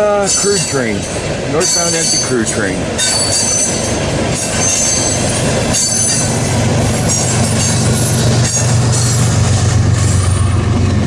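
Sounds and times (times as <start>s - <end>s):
train wheels rumbling on rail: 0.0s - 11.0s
high-pitched wheel squeals: 3.0s - 6.4s, 7.0s - 10.7s.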